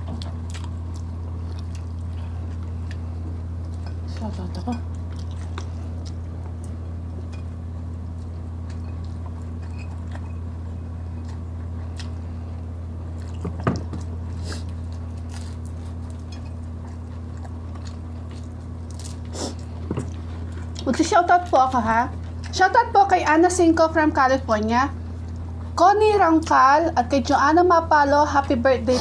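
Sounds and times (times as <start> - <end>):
biting and chewing food: 0.0 - 22.6
steady low hum: 0.0 - 29.0.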